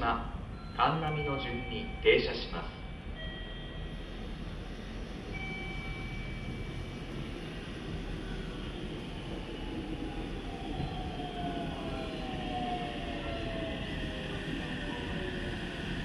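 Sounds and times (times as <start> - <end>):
electric train rumble: 0.0 - 16.0.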